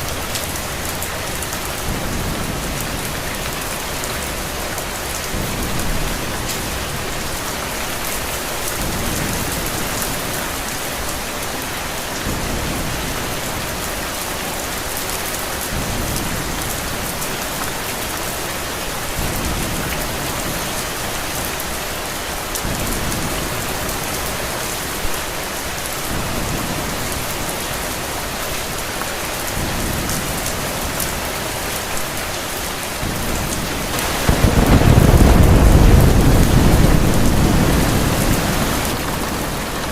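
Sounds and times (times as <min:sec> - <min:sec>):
heavy rain: 0:00.0 - 0:39.9
thunder rumbling: 0:33.0 - 0:39.9.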